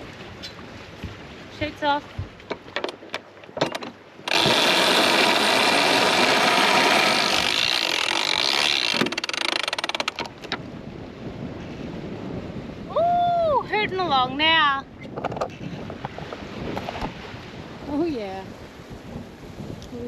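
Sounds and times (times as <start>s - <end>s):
line whirring around winch drum: 2.5s - 10.6s
winch ratchet clicks: 3.6s - 10.6s.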